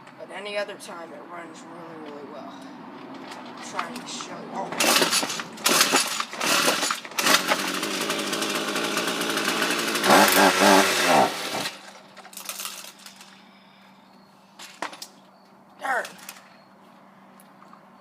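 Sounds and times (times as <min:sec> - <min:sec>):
string trimmer engine starting: 0:04.7 - 0:13.3.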